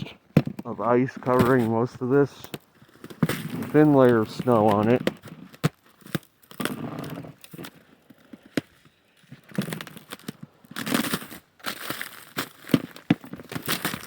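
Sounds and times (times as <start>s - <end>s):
sharp ice clicks: 1.1s - 14.0s.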